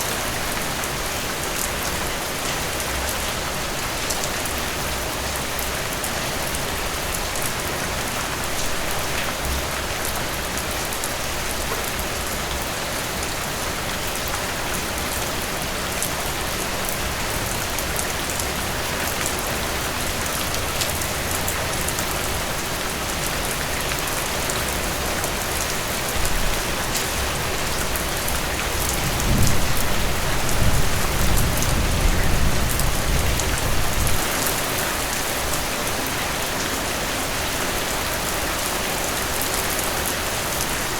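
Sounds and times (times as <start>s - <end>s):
heavy rain falling: 0.0s - 40.9s
distant thunder rumble: 29.0s - 34.2s.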